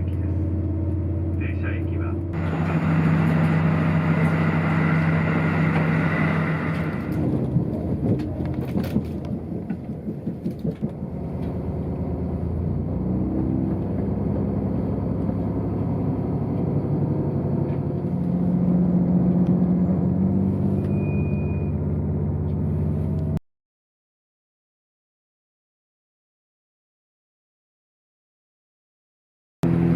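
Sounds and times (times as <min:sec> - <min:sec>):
vehicle engine running: 0:00.0 - 0:23.4, 0:29.6 - 0:29.9
short high beep: 0:20.8 - 0:21.8.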